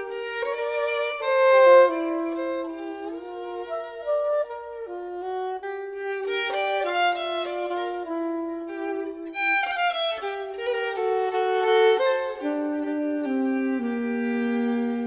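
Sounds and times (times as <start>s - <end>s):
bowed violin melody: 0.0s - 15.0s.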